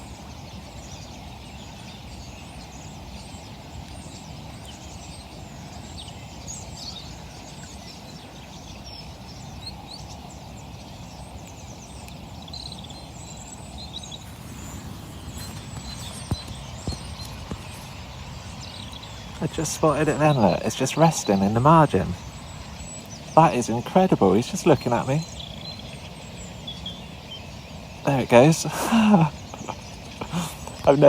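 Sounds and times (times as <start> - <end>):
small birds chirping: 0.0 - 31.0
river rushing: 14.2 - 27.0, 27.6 - 31.0.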